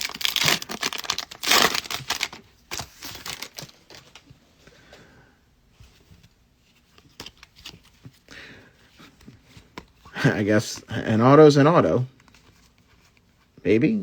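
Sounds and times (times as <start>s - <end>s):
foil wrappers crinkling: 0.0s - 4.2s
trading cards rustling: 0.0s - 4.3s.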